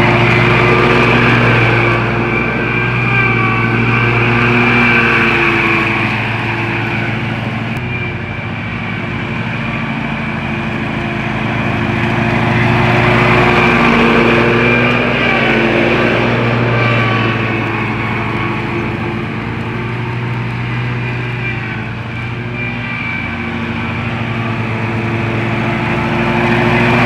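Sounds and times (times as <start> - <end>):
riding lawn mower engine: 0.0 - 27.0.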